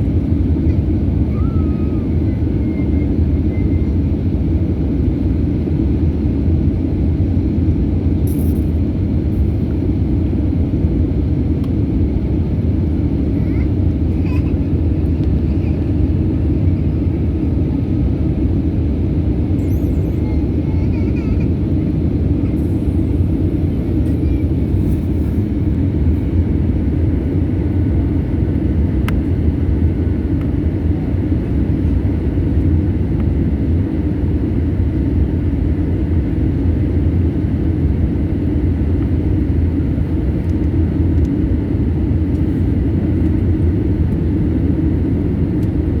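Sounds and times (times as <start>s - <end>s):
airliner cabin rumble: 0.0s - 46.0s.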